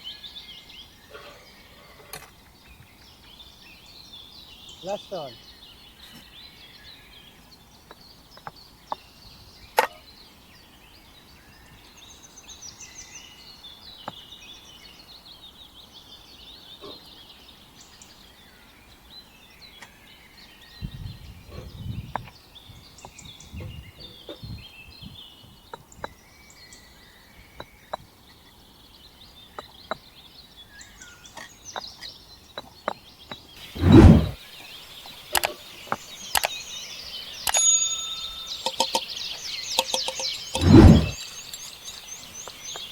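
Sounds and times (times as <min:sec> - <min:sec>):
small birds chirping: 0:00.0 - 0:42.9
sharp clicks and knocks: 0:35.3 - 0:36.6, 0:37.4 - 0:42.9.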